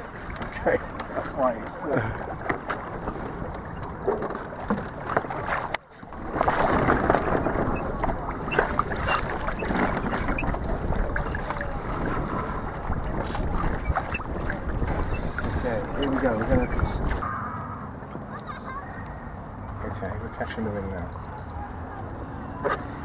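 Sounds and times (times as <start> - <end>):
water noise: 0.0 - 23.0
wind buffeting microphone: 6.1 - 17.3.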